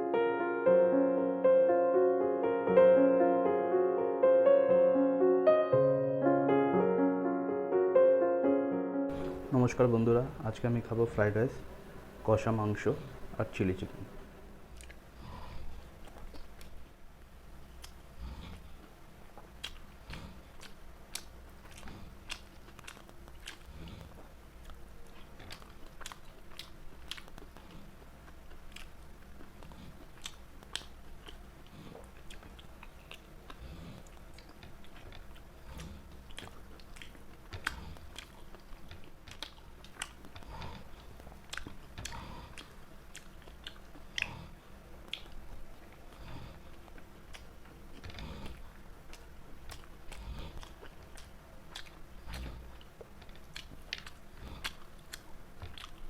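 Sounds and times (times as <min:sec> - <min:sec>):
person chewing: 0:09.1 - 0:09.5, 0:14.1 - 0:16.9, 0:17.7 - 0:56.0.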